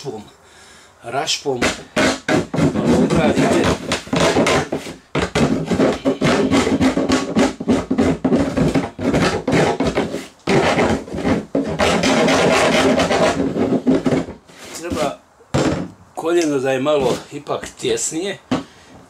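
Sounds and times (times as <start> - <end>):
hand rasp scraping plastic: 1.5 - 15.8.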